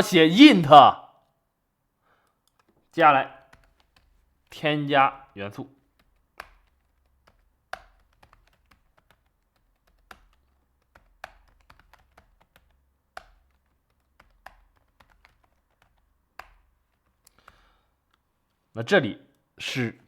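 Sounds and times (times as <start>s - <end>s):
computer keyboard typing: 2.3s - 18.2s.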